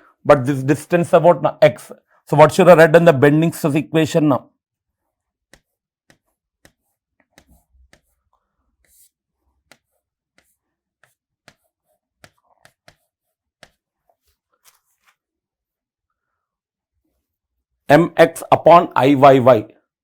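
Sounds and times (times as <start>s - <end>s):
writing clicks and taps: 5.3s - 15.2s.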